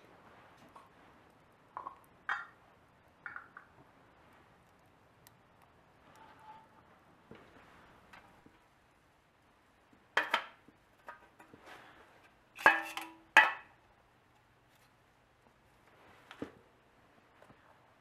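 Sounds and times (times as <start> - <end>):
metal cans clanking: 10.2 - 11.6, 12.6 - 13.7.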